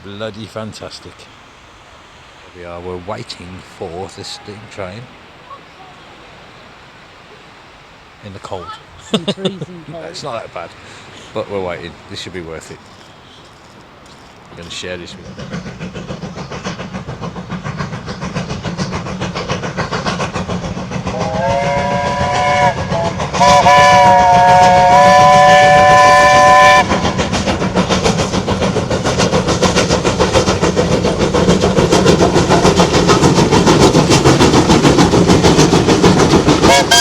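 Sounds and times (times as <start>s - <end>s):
steam locomotive chuffing: 9.1s - 37.0s
steam whistle blasts: 21.1s - 27.0s, 36.7s - 37.0s.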